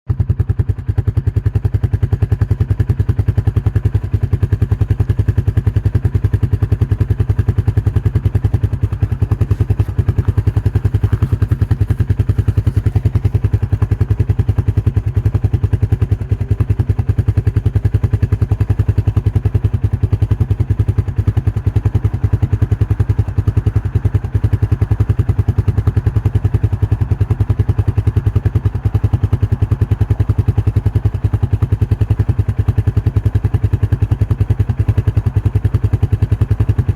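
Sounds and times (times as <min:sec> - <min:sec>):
engine running steadily: 0:00.1 - 0:36.9.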